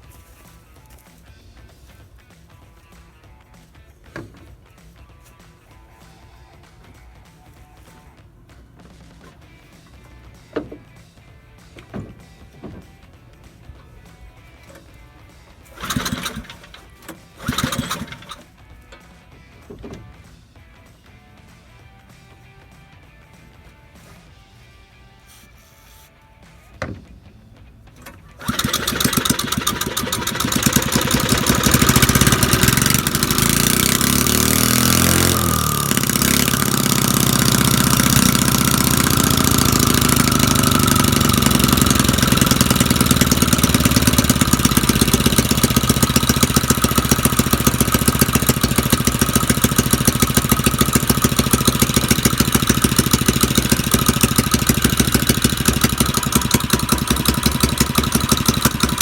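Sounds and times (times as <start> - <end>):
small engine running: 8.8 - 23.0, 27.9 - 59.0.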